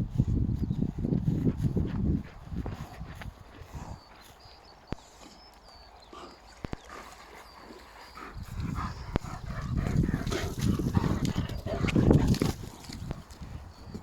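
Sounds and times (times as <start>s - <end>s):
dog low rumbling growl: 6.1s - 13.3s.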